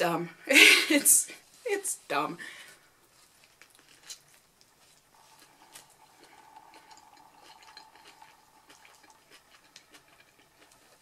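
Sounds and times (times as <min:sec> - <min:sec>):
wet chewing: 0:03.0 - 0:11.0.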